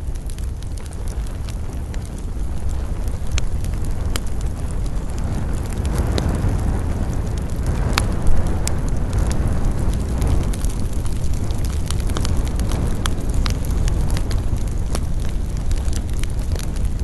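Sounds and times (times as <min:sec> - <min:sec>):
campfire crackling and popping: 0:00.0 - 0:17.0
wind rumbling on microphone: 0:00.0 - 0:17.0
wind through pine trees: 0:00.0 - 0:17.0.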